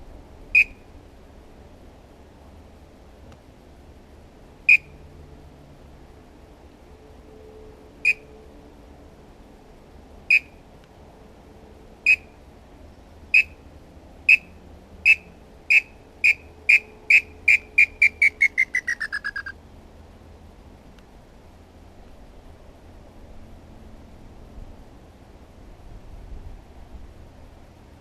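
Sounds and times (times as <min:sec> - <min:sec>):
bird-call whistle notes: 0:00.6 - 0:00.8, 0:04.7 - 0:04.9, 0:08.0 - 0:08.3, 0:10.3 - 0:10.6, 0:12.1 - 0:12.3, 0:13.3 - 0:13.6, 0:15.1 - 0:19.5.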